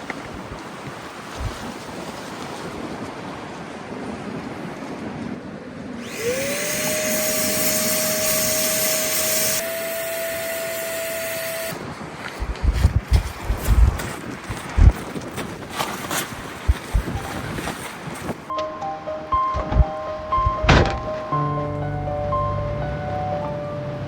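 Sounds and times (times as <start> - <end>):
electric blower motor whine: 6.0 - 11.9.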